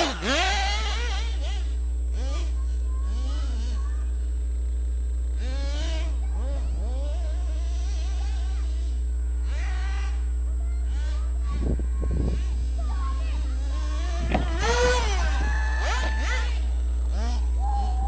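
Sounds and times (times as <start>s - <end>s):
rc car motor buzzing: 0.0s - 18.0s
steady low hum: 0.0s - 18.0s.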